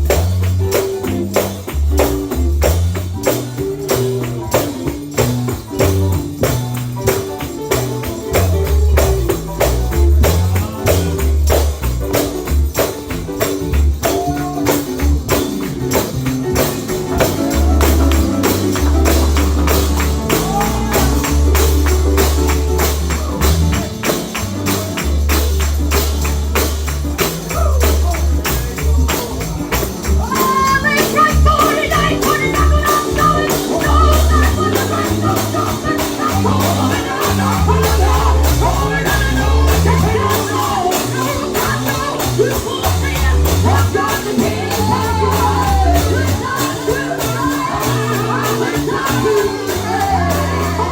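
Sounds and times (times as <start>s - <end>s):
bass line: 0.0s - 50.9s
gospel music: 0.0s - 50.9s
tambourine beating: 0.0s - 50.9s
person singing: 16.8s - 25.5s, 27.4s - 50.9s.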